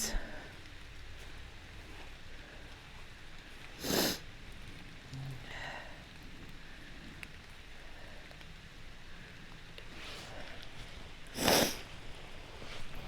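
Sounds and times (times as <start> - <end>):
creek water hiss: 0.0 - 13.0
person sniffing: 3.8 - 4.2, 11.4 - 11.9.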